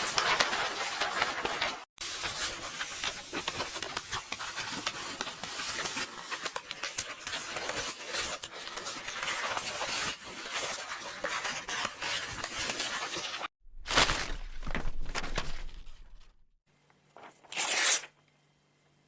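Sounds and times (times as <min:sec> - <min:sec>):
book pages rustling and turning: 0:00.0 - 0:16.4.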